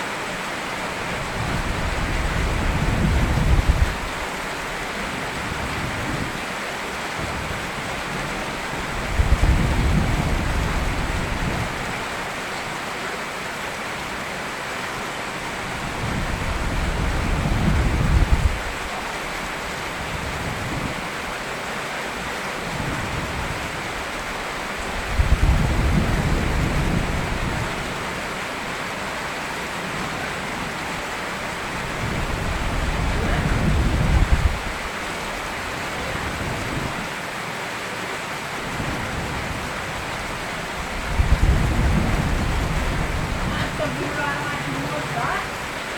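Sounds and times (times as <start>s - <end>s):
heavy rain: 0.0s - 45.9s
thunder rumbling: 1.2s - 6.4s, 7.2s - 12.2s, 15.6s - 21.4s, 22.6s - 28.4s, 29.8s - 37.1s, 38.6s - 45.9s.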